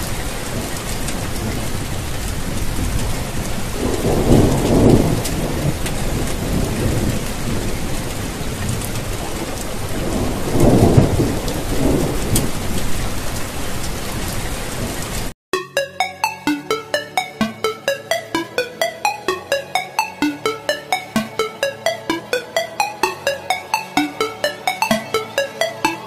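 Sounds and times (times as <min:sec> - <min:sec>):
heavy rain: 0:09.6 - 0:14.8.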